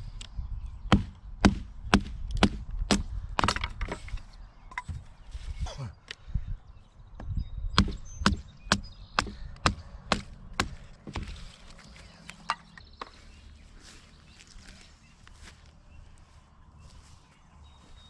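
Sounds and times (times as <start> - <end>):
axe chopping wood: 0.9 - 4.1, 7.8 - 11.4.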